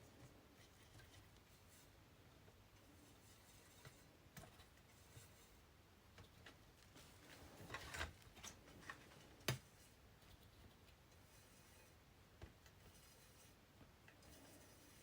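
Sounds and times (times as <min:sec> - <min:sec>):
scraping rustle: 0:02.7 - 0:05.7, 0:06.8 - 0:10.0.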